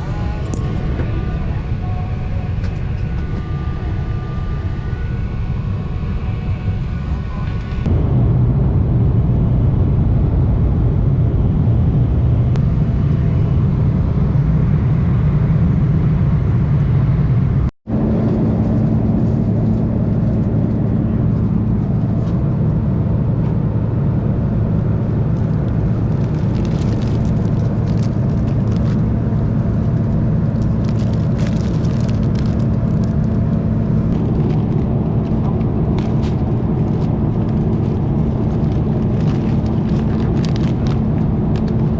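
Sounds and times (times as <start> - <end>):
jet airliner cabin rumble: 0.0 - 41.9.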